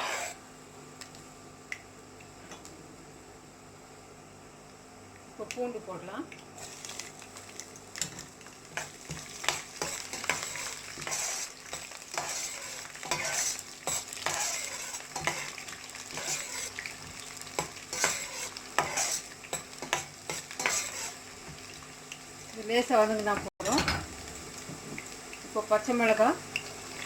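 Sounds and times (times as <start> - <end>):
garlic sizzling in oil: 0.0 - 0.4, 5.4 - 27.0
spoon scraping and knocking pan: 0.0 - 0.4, 8.8 - 16.7, 17.6 - 21.2.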